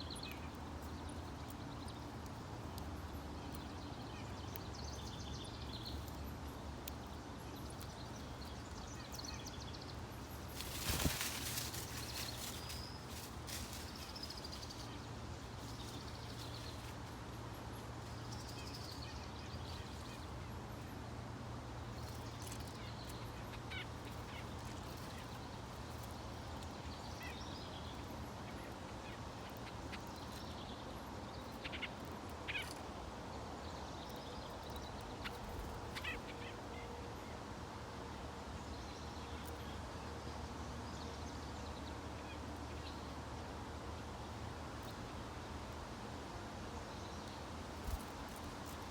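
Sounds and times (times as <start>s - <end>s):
birds calling and chirping: 0.0s - 21.0s, 21.9s - 37.0s.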